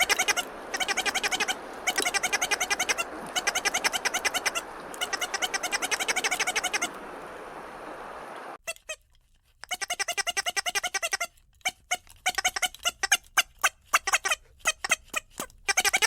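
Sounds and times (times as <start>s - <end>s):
short high-pitched animal calls: 0.0s - 7.8s.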